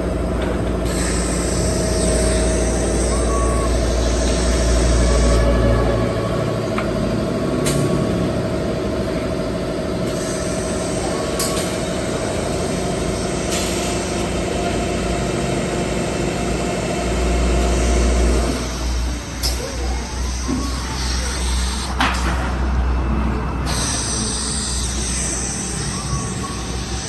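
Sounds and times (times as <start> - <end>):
drilling machine whine: 0.0 - 27.0.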